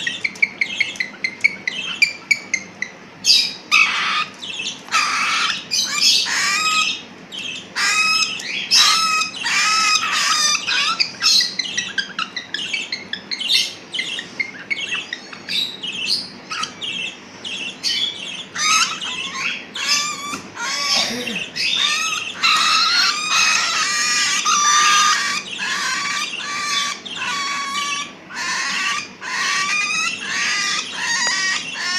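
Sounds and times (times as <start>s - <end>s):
birds squawking and chirping: 0.0s - 31.9s.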